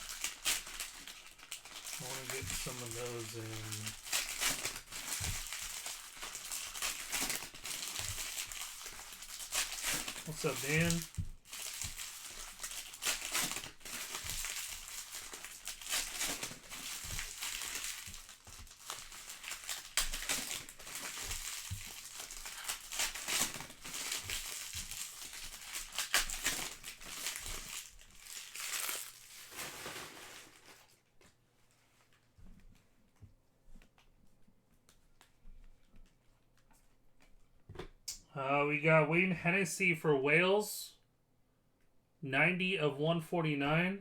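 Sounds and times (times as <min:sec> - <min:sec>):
plastic packaging tearing and crinkling: 0:00.0 - 0:31.0.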